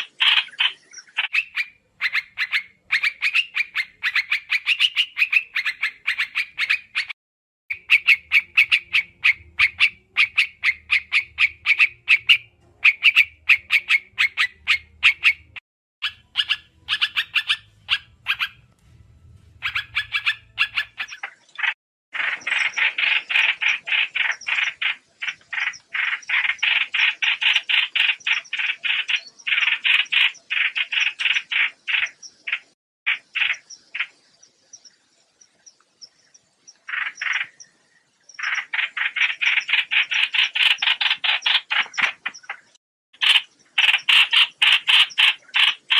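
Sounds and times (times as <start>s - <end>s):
harsh chattering bird calls: 0.0s - 18.7s, 19.4s - 45.9s
faint low hum: 16.6s - 21.0s.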